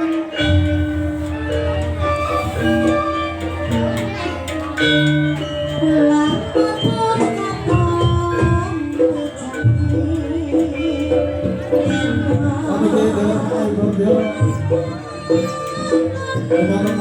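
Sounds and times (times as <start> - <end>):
drumming: 0.0 - 17.0
melodic lead line: 0.3 - 6.8.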